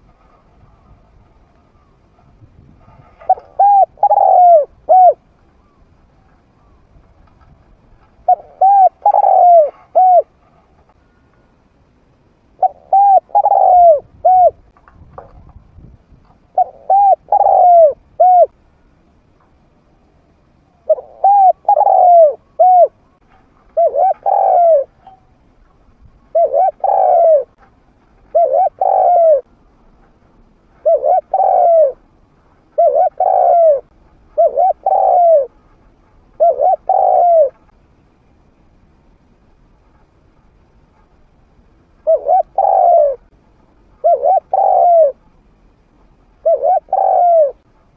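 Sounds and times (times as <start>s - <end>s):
dove cooing: 2.8s - 5.9s, 8.2s - 10.5s, 12.6s - 14.7s, 16.5s - 18.6s, 20.8s - 23.1s, 23.7s - 25.2s, 26.2s - 27.6s, 28.3s - 29.5s, 30.8s - 32.0s, 32.7s - 35.6s, 36.3s - 37.7s, 42.0s - 43.3s, 44.0s - 45.2s, 46.4s - 47.7s.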